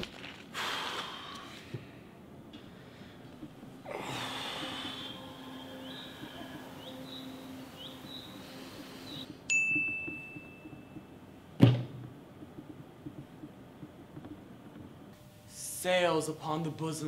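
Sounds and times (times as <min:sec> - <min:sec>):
bright bell ding: 0:09.5 - 0:11.0.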